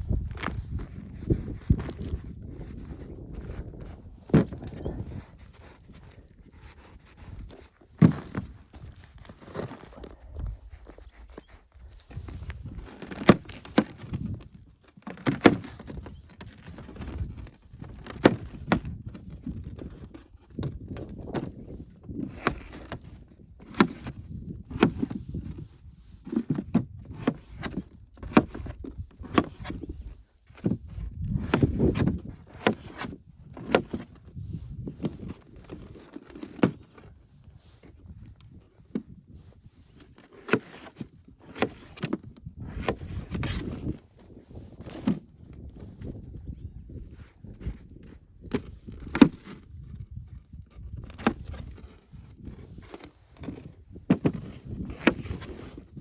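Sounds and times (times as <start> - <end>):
scraping and rustling: 0.1 - 18.6.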